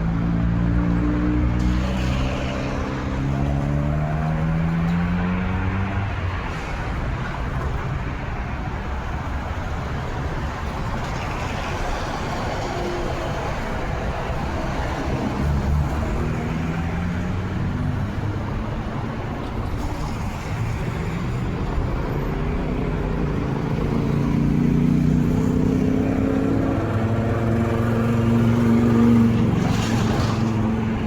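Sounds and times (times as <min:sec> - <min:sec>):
road traffic: 0:00.0 - 0:31.0.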